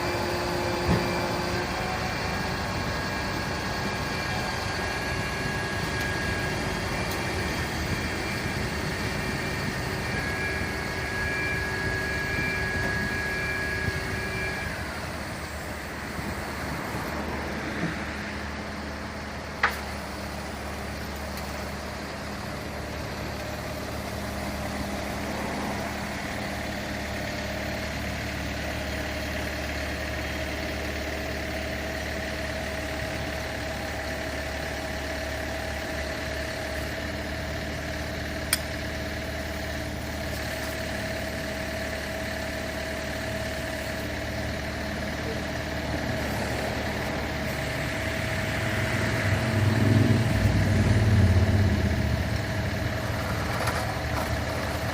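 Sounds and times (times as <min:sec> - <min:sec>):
steady whine: 0:00.0 - 0:29.8, 0:32.3 - 0:54.9
fire truck engine idling: 0:00.0 - 0:54.9.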